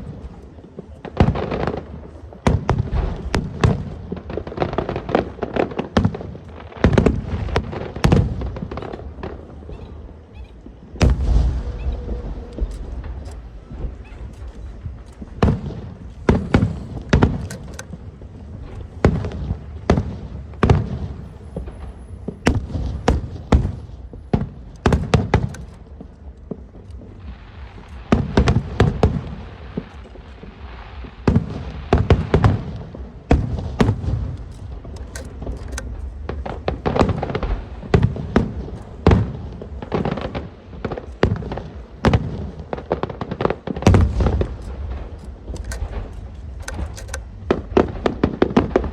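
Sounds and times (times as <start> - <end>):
fireworks crackling hiss: 0.0 - 34.9
fireworks booming: 0.0 - 48.9.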